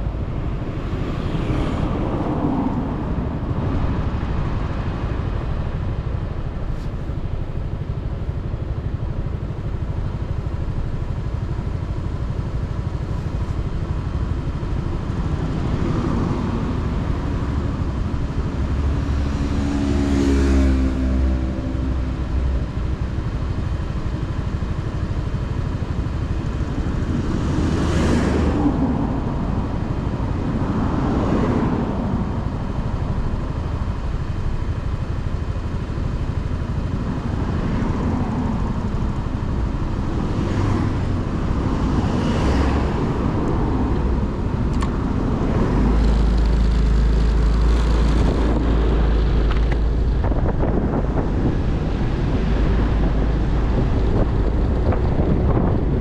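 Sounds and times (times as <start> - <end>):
vehicles passing close: 0.0 - 56.0
motorcycle engine: 31.8 - 56.0.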